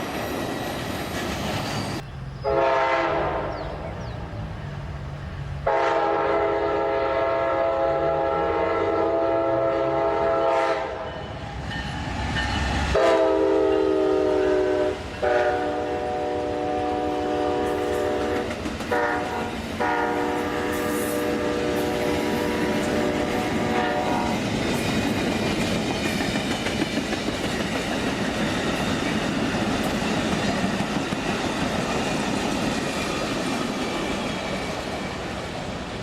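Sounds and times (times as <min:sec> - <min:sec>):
locomotive engine rumble: 0:00.0 - 0:06.7
train air horn blasts: 0:02.4 - 0:03.6, 0:05.6 - 0:11.4, 0:12.9 - 0:24.4.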